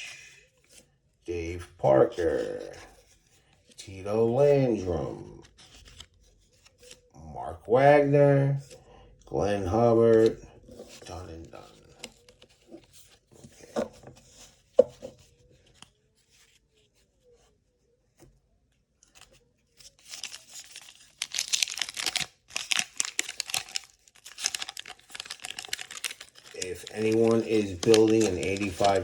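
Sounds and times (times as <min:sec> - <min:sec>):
wax paper tearing and crinkling: 0:19.9 - 0:29.0.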